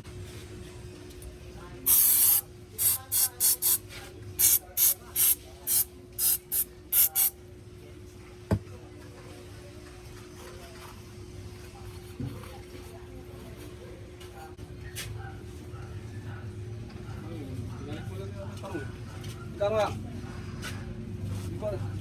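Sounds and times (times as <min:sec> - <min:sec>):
aerosol spray can hissing: 0:01.9 - 0:03.8, 0:04.4 - 0:07.3.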